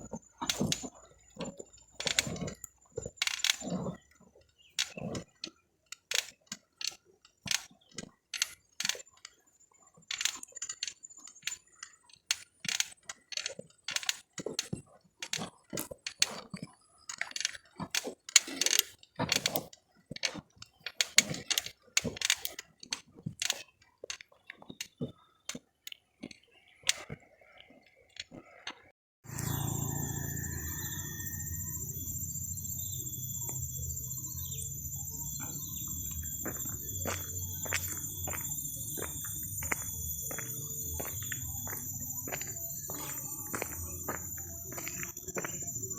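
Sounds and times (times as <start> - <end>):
shrill insect chorus: 29.3 - 45.9.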